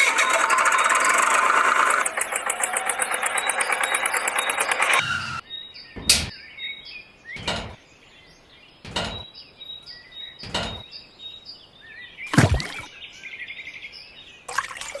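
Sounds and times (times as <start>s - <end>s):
small engine buzz: 0.0s - 5.4s
birds chirping faintly: 0.0s - 15.0s
sharp knocks: 6.0s - 6.3s, 7.4s - 7.8s, 8.8s - 9.3s, 10.4s - 10.8s.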